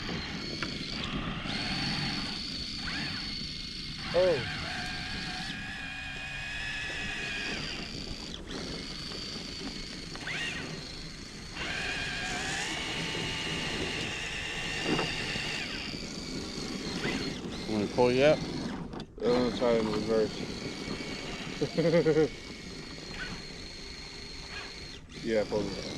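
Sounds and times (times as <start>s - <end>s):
electric motor whining: 0.0s - 25.9s.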